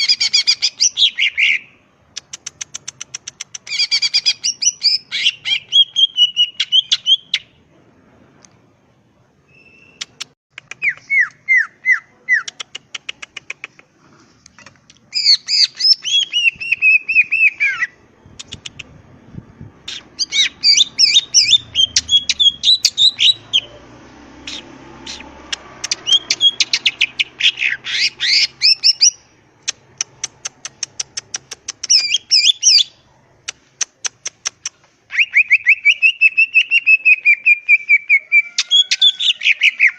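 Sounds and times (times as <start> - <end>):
bird singing varied phrases: 0.0 - 1.9, 3.7 - 7.7, 9.5 - 12.5, 15.1 - 19.0, 19.8 - 29.4, 31.8 - 33.0, 35.1 - 39.9.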